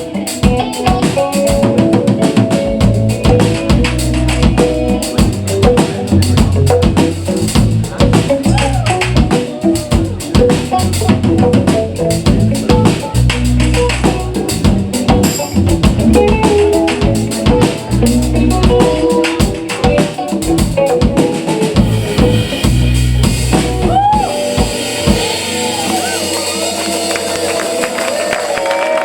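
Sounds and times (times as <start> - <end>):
drum kit fills: 0.0 - 29.0
live band playing: 0.0 - 29.0
audience applause and cheering: 8.4 - 10.6, 23.7 - 29.0
audience whooping: 8.4 - 10.6, 23.6 - 29.0.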